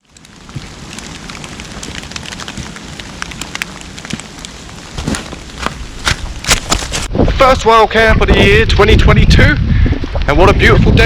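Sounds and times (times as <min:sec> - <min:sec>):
heavy rain pattering in woodland: 0:00.0 - 0:08.1.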